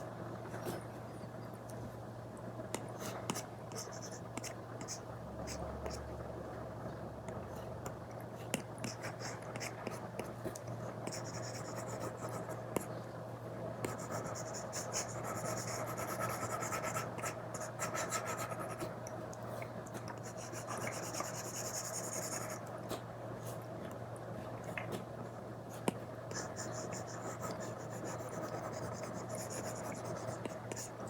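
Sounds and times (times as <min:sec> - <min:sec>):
stylus scratching on screen protector: 0:26.4 - 0:31.0.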